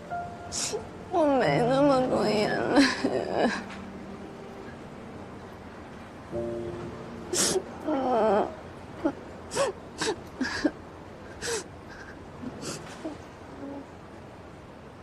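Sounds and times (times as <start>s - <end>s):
person crying: 0.6s - 3.7s.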